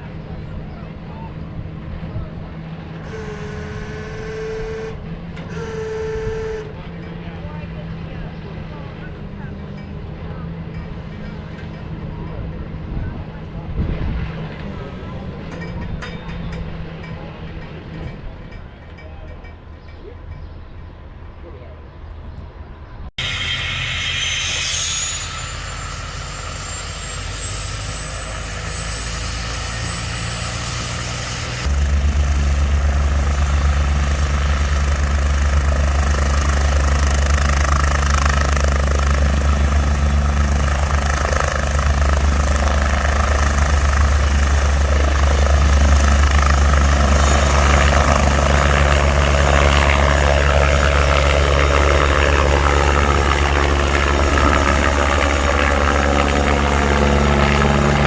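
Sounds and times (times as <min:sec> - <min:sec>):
high thin whine: 0:23.2 - 0:58.0
large engine running: 0:23.2 - 0:58.0
deep steady hum: 0:31.5 - 0:38.4.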